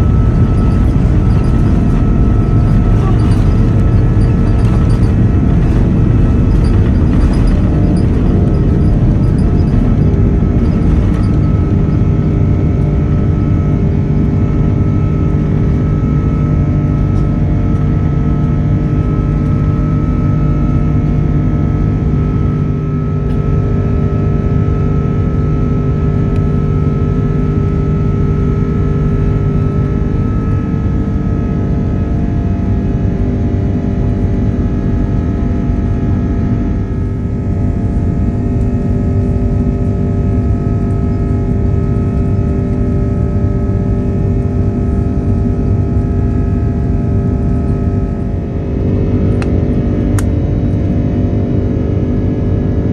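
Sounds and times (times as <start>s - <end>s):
jet engine high whine: 0.0s - 52.9s
jet engine low drone: 0.0s - 52.9s.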